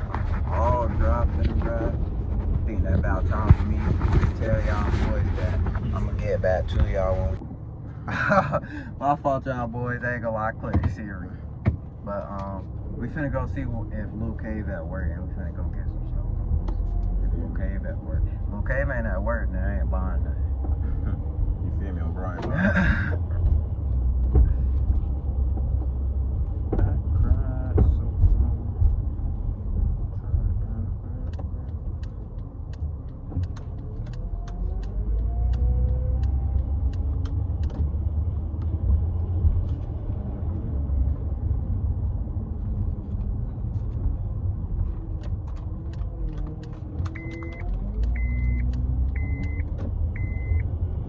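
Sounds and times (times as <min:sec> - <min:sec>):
car road and engine rumble: 0:00.0 - 0:51.0
high electronic beep: 0:48.2 - 0:49.6, 0:50.2 - 0:50.6.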